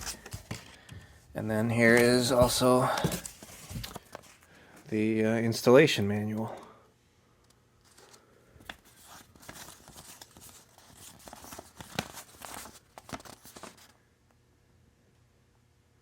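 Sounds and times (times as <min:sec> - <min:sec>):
paper rustling and crinkling: 0:00.0 - 0:00.9, 0:01.7 - 0:04.5, 0:07.8 - 0:14.0.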